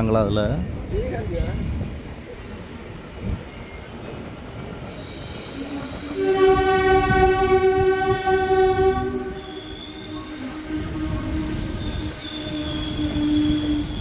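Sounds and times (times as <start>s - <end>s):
moving train running noise: 0.0s - 14.0s
train horn blast: 6.1s - 14.0s.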